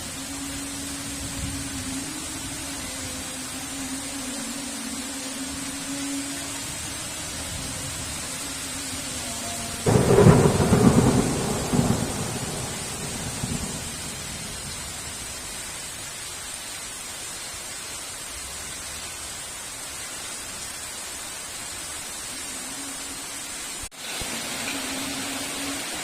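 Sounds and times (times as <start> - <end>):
heavy rain: 0.0 - 26.0
thunder crack and rumble: 9.9 - 15.1.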